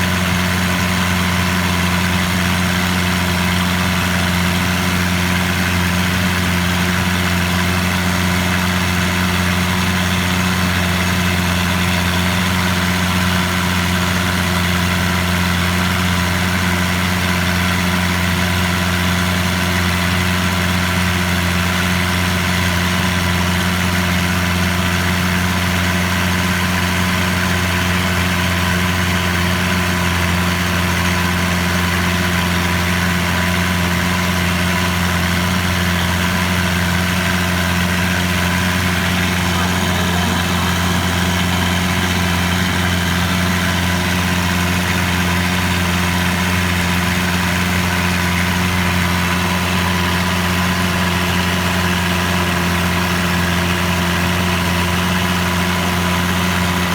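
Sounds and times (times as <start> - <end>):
boat engine droning: 35.7 - 54.8.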